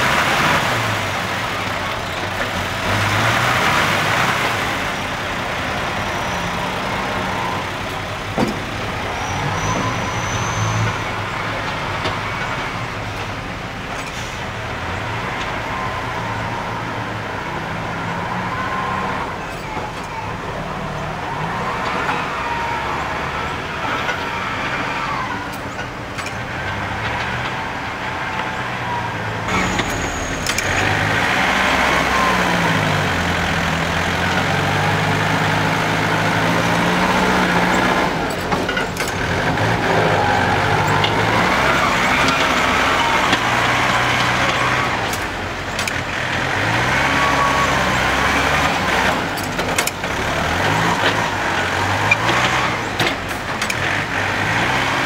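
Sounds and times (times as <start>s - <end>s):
dump truck engine running: 0.0s - 55.0s.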